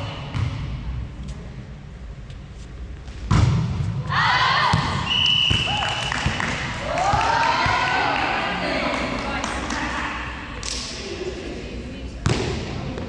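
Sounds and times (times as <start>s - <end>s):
volleyball thump: 3.2s - 3.9s
players shouting: 4.1s - 8.9s
referee's whistle blast: 5.0s - 6.1s.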